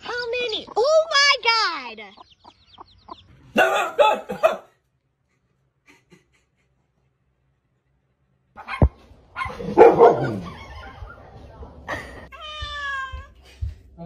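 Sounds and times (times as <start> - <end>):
dog barking loudly: 8.6 - 10.6.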